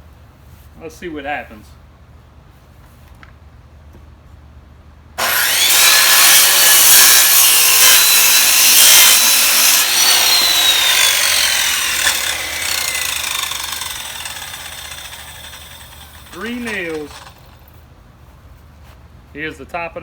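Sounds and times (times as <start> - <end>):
saw motor whine spinning down: 5.2 - 17.6
circular saw cutting wood: 5.2 - 17.7.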